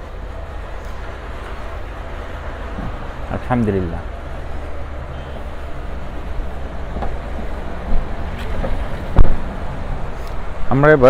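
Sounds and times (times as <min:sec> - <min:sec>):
low engine rumble: 0:00.0 - 0:11.0
sharp thump: 0:08.4 - 0:09.4.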